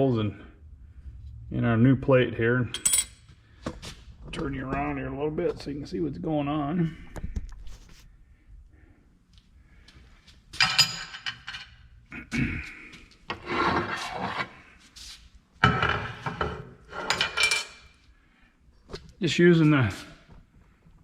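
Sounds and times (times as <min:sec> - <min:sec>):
rubbing and scraping by hand: 0:13.3 - 0:15.4.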